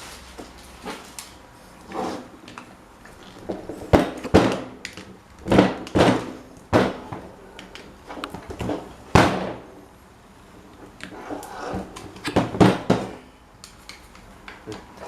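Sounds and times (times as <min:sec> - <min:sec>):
tool scraping: 0:11.1 - 0:12.0.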